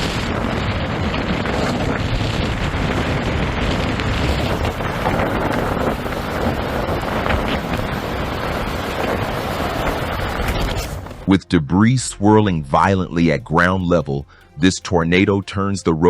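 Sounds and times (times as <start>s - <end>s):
strong wind buffeting microphone: 0.0s - 11.3s.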